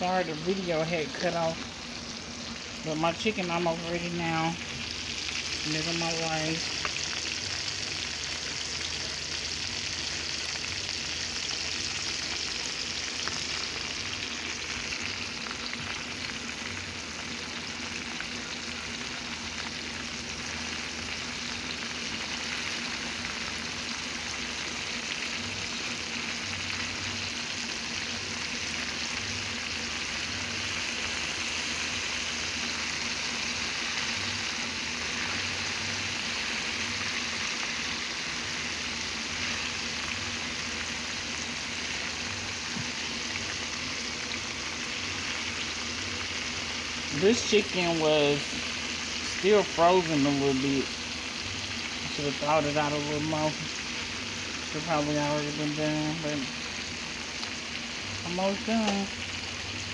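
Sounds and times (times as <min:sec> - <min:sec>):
chicken sizzling in hot oil: 0:00.0 - 0:59.9.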